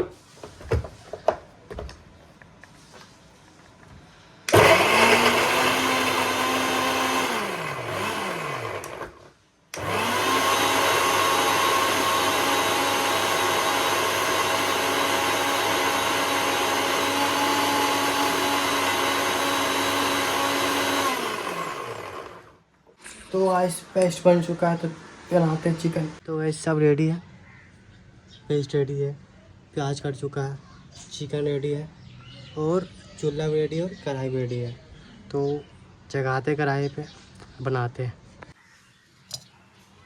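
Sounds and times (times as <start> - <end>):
mixer grinder whining: 4.5 - 22.6.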